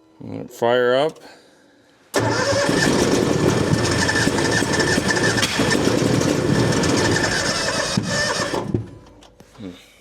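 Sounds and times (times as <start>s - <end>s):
engine cranking on starter: 2.1s - 9.1s.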